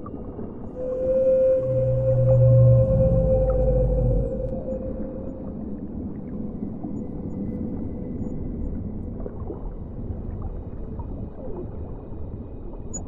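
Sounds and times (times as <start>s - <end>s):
whale song: 0.0s - 9.7s
low underwater rumble: 0.0s - 12.9s.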